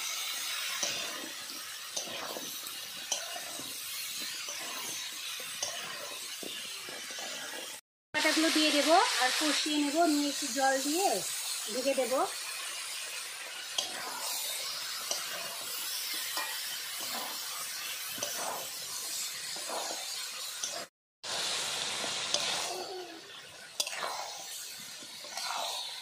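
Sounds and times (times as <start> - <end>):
chicken sizzling in oil: 0.0 - 26.0
metal spatula scraping pan: 0.1 - 7.8, 13.5 - 20.9, 23.7 - 26.0.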